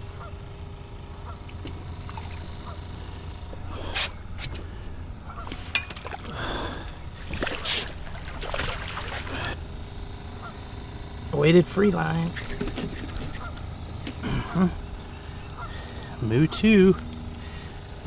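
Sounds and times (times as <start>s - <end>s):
low steady hum: 0.0s - 18.0s
fish splashing and thrashing in water: 1.5s - 2.8s, 5.4s - 9.6s, 12.4s - 13.5s.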